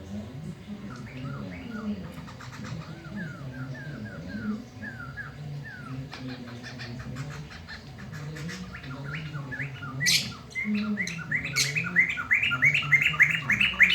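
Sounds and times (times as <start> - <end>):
bird singing whistled notes: 2.7 - 7.3, 8.0 - 13.9.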